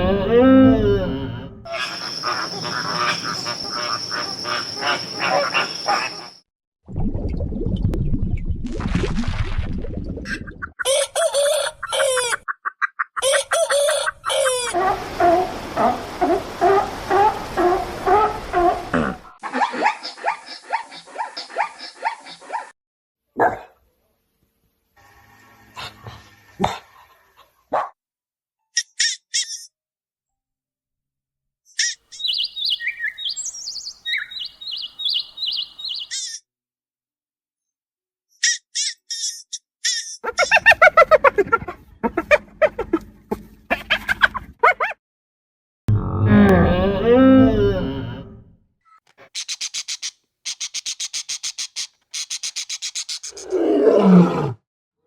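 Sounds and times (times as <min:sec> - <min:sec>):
poultry calling: 0:00.0 - 0:06.4, 0:32.2 - 0:36.1
poultry clucking: 0:01.7 - 0:06.3
small bird warbling song: 0:31.8 - 0:36.4.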